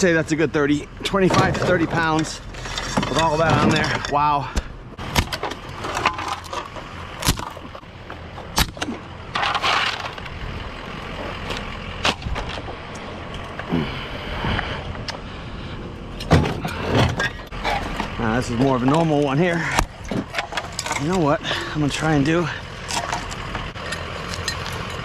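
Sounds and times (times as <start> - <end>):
metal knocks and clunks: 16.2 - 19.0, 19.7 - 21.2.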